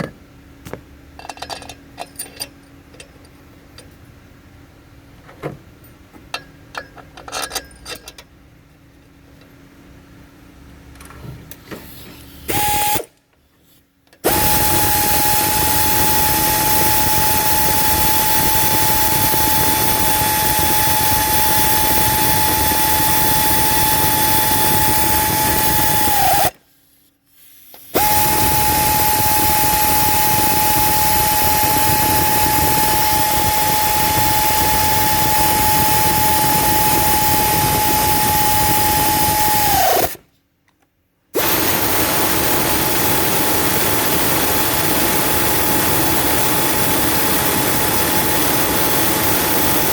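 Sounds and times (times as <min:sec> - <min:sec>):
power tool whining: 0:12.5 - 0:13.1, 0:14.2 - 0:26.6, 0:27.9 - 0:40.2, 0:41.4 - 0:49.9.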